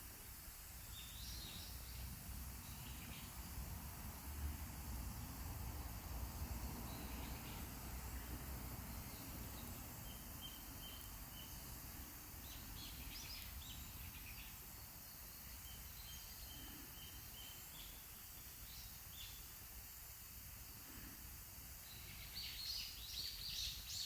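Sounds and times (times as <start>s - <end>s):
low rumble and hiss: 0.0s - 24.0s
bird chirping: 6.8s - 11.8s, 12.4s - 18.0s, 21.9s - 24.0s.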